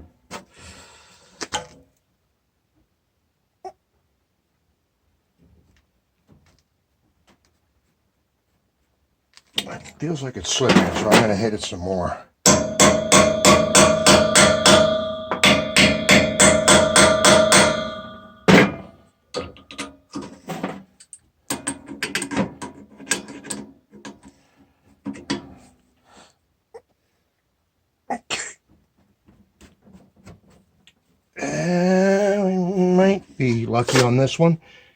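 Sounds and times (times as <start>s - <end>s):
hammer ringing on metal: 12.5s - 19.0s.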